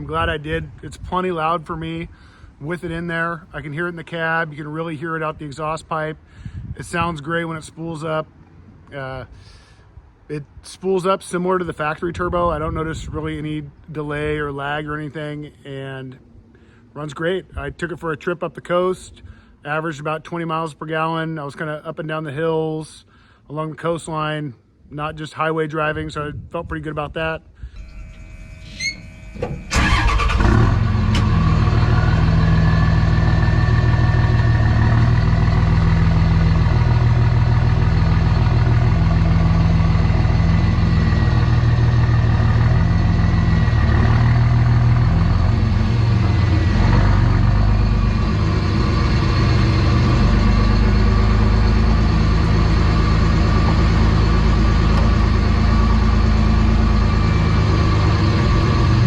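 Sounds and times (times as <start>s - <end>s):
turbo whistle: 27.8s - 30.4s
diesel engine idling: 27.8s - 59.0s.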